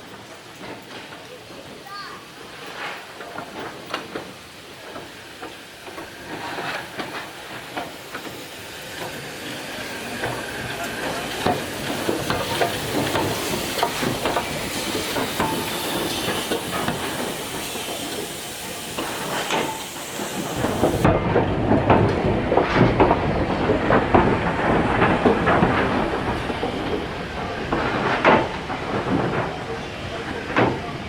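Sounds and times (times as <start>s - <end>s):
steam locomotive hissing steam: 0.0s - 31.0s
metallic clanks: 11.4s - 30.9s.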